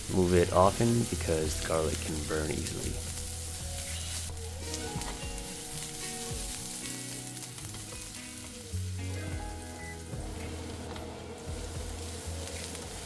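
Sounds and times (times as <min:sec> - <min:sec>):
food sizzling in hot oil: 0:00.0 - 0:13.0
spatula stirring in wok: 0:02.9 - 0:13.0.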